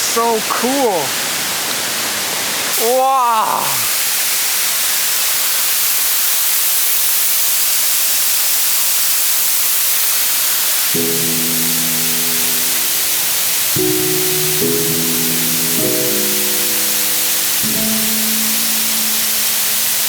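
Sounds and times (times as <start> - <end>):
waterfall rushing: 0.0 - 6.9, 7.8 - 20.0
sustained music chords: 11.0 - 20.0.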